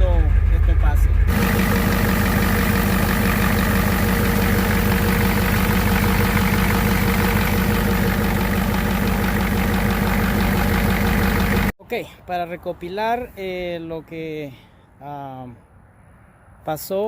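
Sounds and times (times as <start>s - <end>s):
diesel engine idling: 0.0s - 11.8s.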